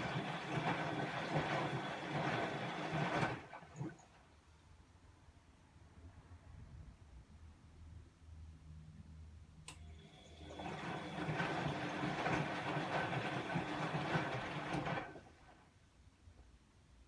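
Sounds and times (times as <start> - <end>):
washing machine drum whirring: 0.0 - 4.2, 9.8 - 15.6.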